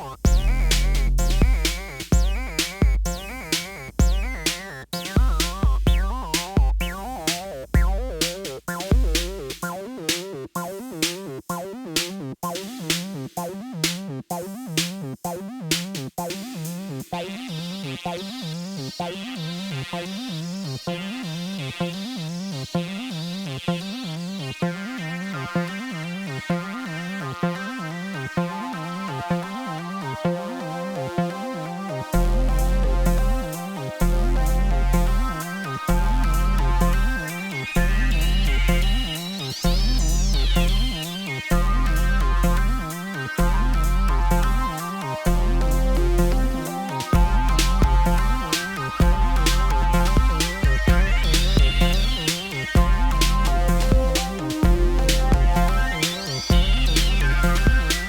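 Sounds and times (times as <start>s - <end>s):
steady electronic beat: 0.0s - 23.9s, 31.3s - 58.0s
heavy kick with deep bass: 0.2s - 9.6s, 45.3s - 58.0s
wobbling synth with falling zaps: 32.2s - 58.0s.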